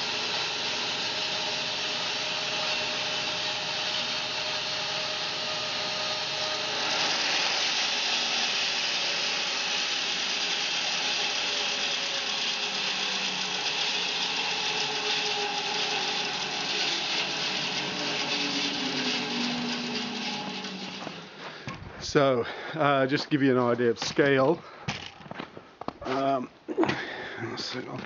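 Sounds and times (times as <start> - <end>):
saw hiss cutting log: 0.0 - 21.6
sawmill engine running: 0.0 - 21.8.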